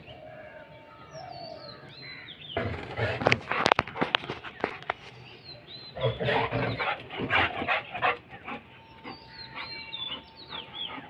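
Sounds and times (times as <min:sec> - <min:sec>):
dog barking and growling: 0:06.0 - 0:08.7
faint high bird chirps: 0:08.4 - 0:11.0.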